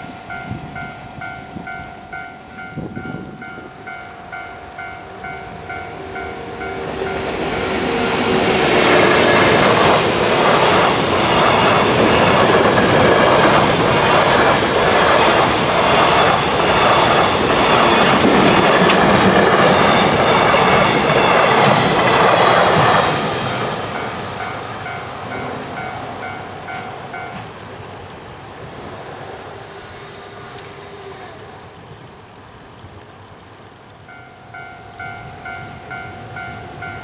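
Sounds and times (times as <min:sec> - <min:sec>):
train wheels clattering: 0:00.0 - 0:27.8.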